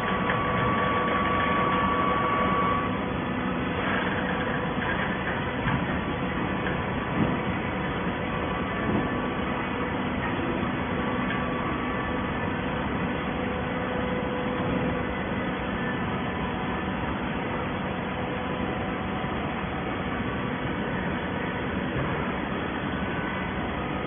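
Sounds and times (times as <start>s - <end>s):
baler machinery running: 0.0s - 24.0s.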